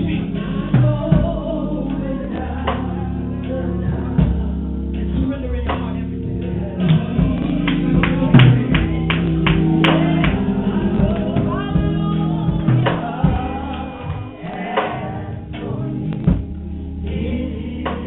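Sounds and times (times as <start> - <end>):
gospel singing voices: 0.0 - 18.0
keyboard chords: 0.0 - 18.0
sharp rhythmic beats: 0.0 - 18.0.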